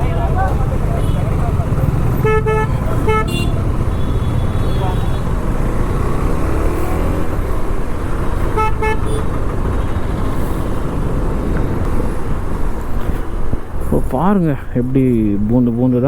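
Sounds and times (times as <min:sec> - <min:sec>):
road traffic rumble: 0:00.0 - 0:16.0
vehicle horn toots: 0:02.2 - 0:05.4, 0:08.4 - 0:10.1.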